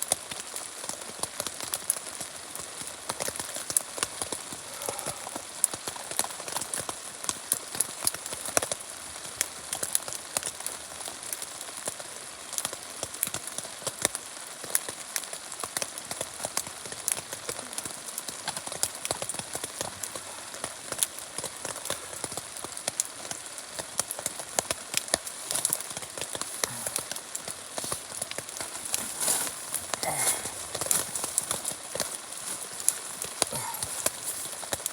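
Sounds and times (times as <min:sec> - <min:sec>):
light rain hiss: 0:00.0 - 0:34.9
rain tapping on tent fabric: 0:00.0 - 0:34.9.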